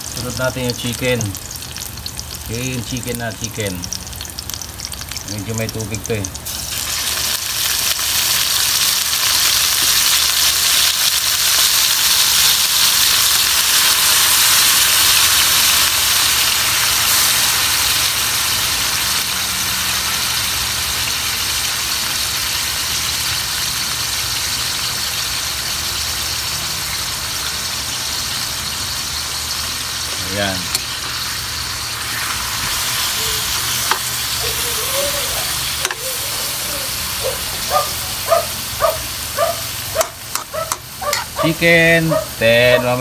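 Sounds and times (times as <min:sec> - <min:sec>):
chicken sizzling in hot oil: 0:00.0 - 0:43.0.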